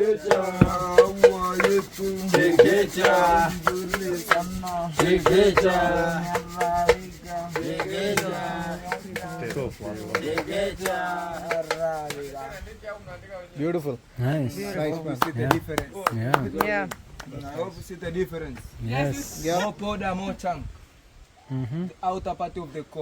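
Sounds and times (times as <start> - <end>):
people singing: 0.0 - 12.4
pestle pounding in a mortar: 0.6 - 1.8.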